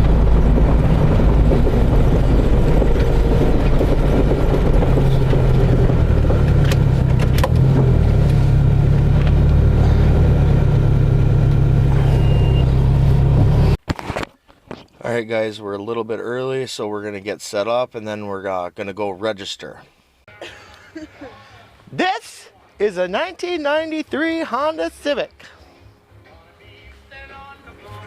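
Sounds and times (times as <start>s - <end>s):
car engine and road rumble: 0.0s - 13.8s.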